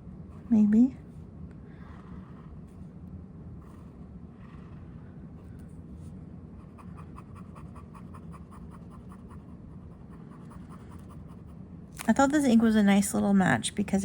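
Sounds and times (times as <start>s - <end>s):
faint low hum: 0.0s - 14.0s
pen scratching on paper: 1.8s - 2.9s, 3.6s - 5.0s, 6.6s - 11.6s.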